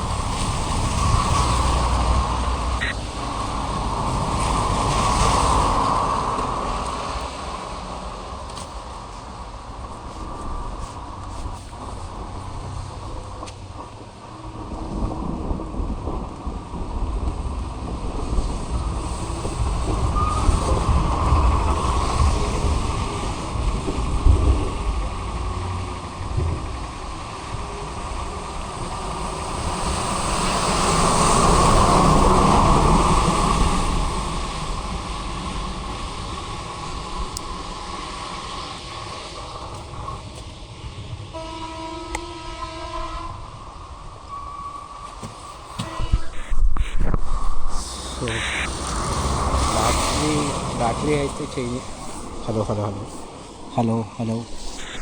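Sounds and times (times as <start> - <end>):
heavy rain: 0.0 - 55.0
heavy vehicle passing: 47.4 - 55.0.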